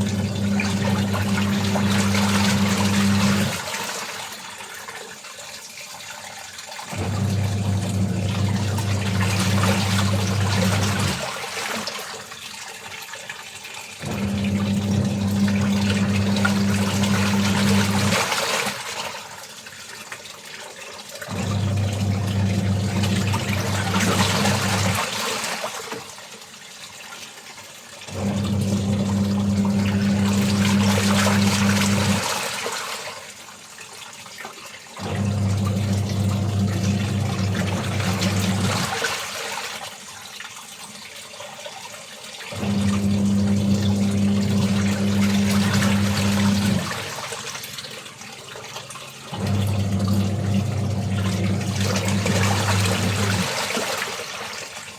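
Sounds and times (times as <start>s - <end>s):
washing machine motor humming: 0.0s - 4.4s, 6.9s - 11.9s, 14.0s - 19.0s, 21.3s - 25.8s, 28.1s - 32.7s, 35.0s - 39.8s, 42.5s - 47.7s, 49.2s - 54.8s
water sloshing in drum: 0.0s - 54.9s.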